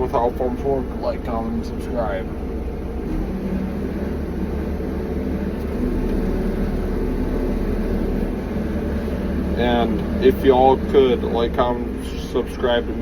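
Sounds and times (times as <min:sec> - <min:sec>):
low engine-like rumble: 0:00.0 - 0:13.0.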